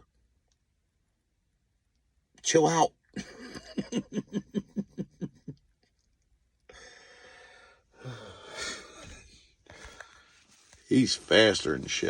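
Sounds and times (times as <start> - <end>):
rhythmic chuckling: 3.2 - 5.6
long breathy exhalations: 6.7 - 10.7.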